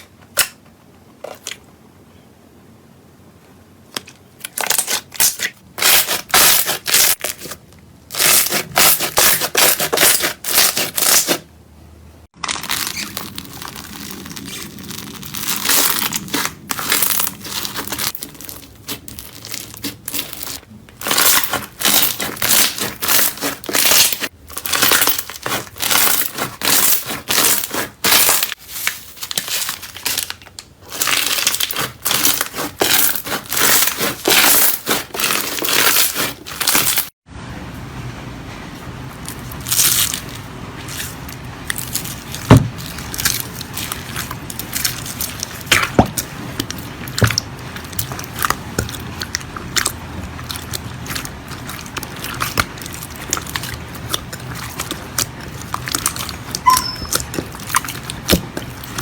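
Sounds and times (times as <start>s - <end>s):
slime crackling and popping: 12.4s - 28.6s, 29.3s - 37.1s, 39.6s - 59.0s.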